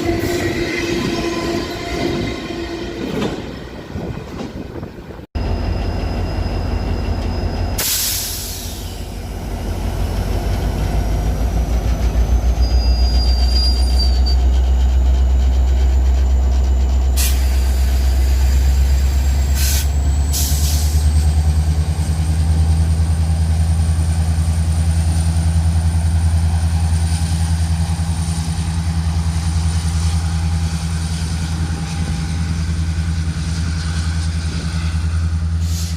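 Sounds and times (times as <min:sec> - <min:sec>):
train rumbling past: 0:00.0 - 0:35.9
high-pitched wheel squeal: 0:12.3 - 0:20.3.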